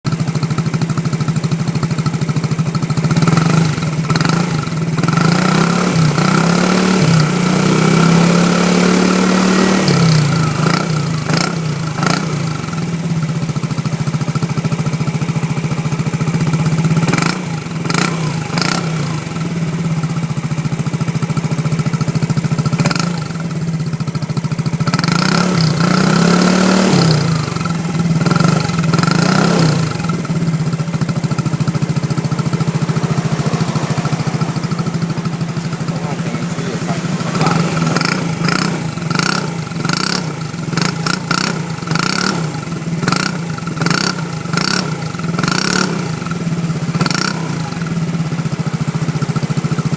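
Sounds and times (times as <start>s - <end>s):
moped engine idling and revving: 0.0s - 49.9s
exhaust cracks: 26.5s - 45.5s.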